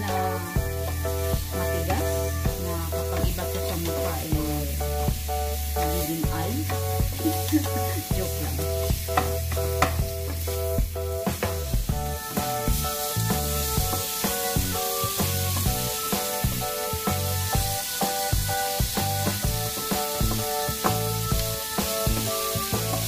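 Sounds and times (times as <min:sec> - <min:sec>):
instrumental music with bass line: 0:00.0 - 0:23.0
meat sizzling in a frying pan: 0:00.0 - 0:23.0
spatula knocking and scraping pan: 0:00.1 - 0:23.0.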